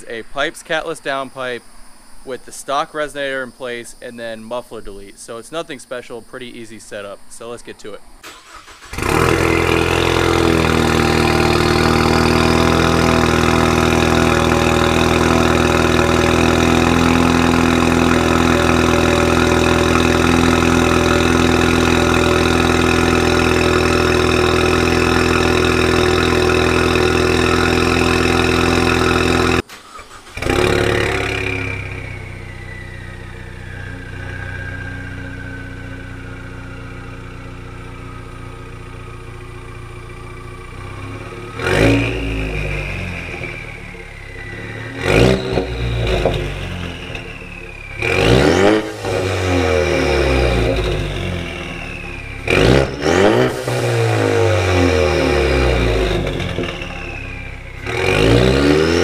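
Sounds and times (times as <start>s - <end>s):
engine whine: 8.0s - 59.0s
engine starting: 8.2s - 9.9s, 29.6s - 31.9s
car engine fast idle: 8.2s - 40.8s.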